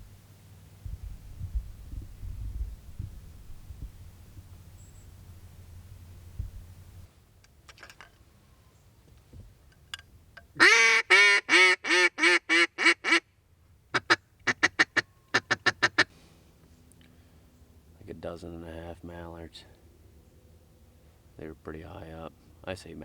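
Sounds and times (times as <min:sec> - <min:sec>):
duck call quacks: 0:10.6 - 0:13.2, 0:13.9 - 0:16.1.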